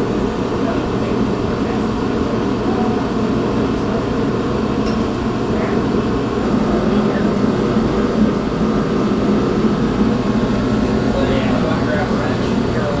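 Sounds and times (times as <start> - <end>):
faint steady hum: 6.4 - 13.0
machine droning: 6.4 - 13.0.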